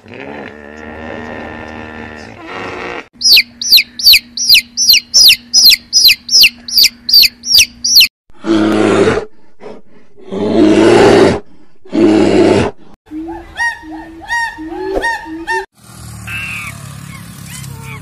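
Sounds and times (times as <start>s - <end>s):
chick peeping: 3.2s - 8.1s.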